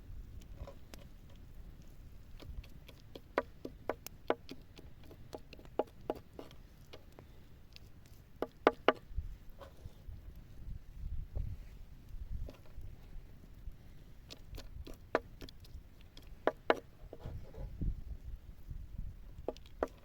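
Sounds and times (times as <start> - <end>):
sharp hollow knocks: 8.4 - 9.0.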